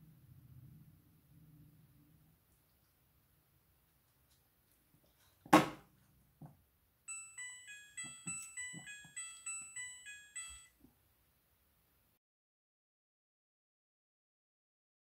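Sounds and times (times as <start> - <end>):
washing machine beeping jingle: 7.1 - 10.8.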